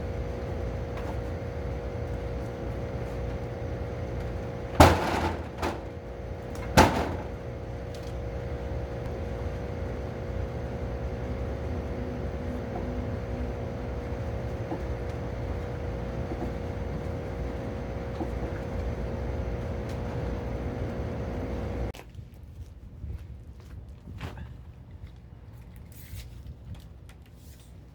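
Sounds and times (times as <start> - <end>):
machine motor humming: 0.0 - 22.0.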